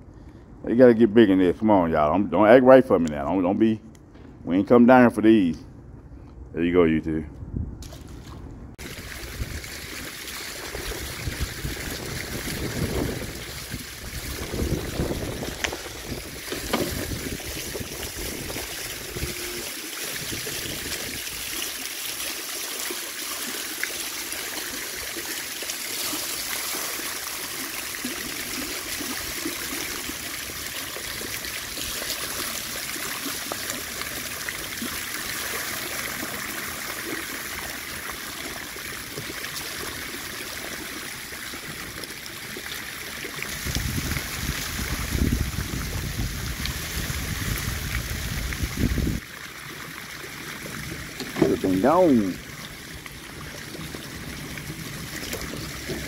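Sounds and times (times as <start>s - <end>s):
wind buffeting microphone: 7.3s - 21.5s, 43.5s - 49.2s
water rushing over spillway: 8.8s - 56.0s.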